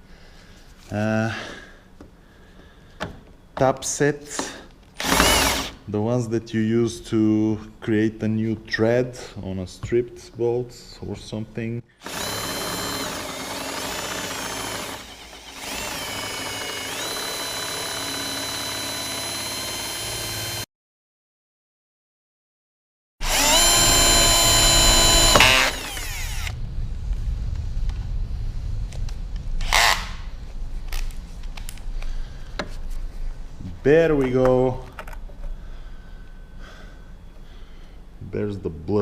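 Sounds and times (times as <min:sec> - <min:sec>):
electric drill drilling into metal: 0:05.0 - 0:05.8, 0:12.0 - 0:20.6, 0:23.2 - 0:26.6, 0:29.6 - 0:30.2.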